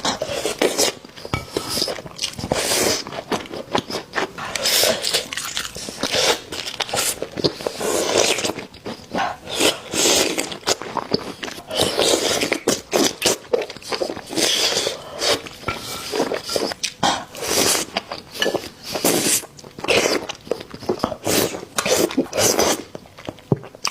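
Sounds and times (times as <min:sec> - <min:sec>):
crunching bites and chewing: 0:01.7 - 0:09.1.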